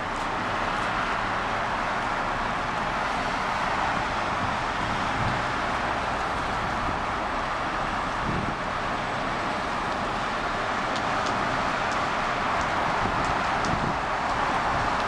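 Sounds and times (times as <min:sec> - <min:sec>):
heavy rain falling: 0:07.2 - 0:15.0.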